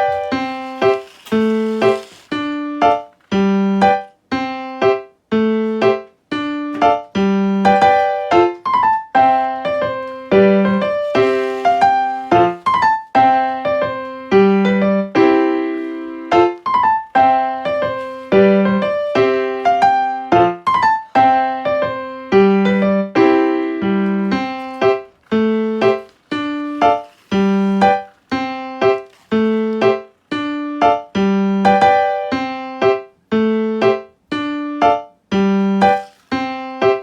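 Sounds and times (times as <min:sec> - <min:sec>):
piano music: 0:00.0 - 0:37.0.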